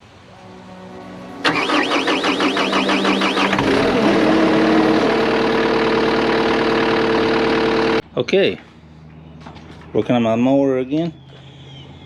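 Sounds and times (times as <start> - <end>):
lawnmower engine cranking and idling: 1.4 - 8.0.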